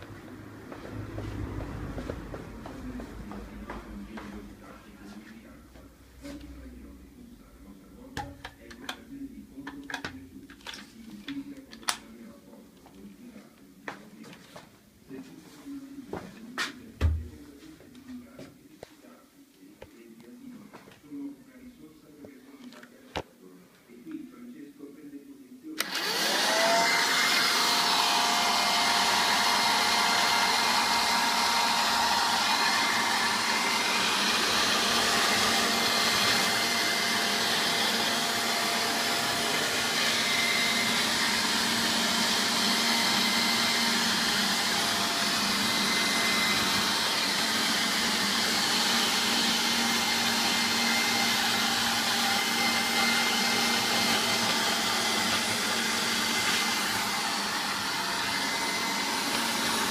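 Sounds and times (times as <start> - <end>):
handheld vacuum cleaner whine: 25.8 - 59.9.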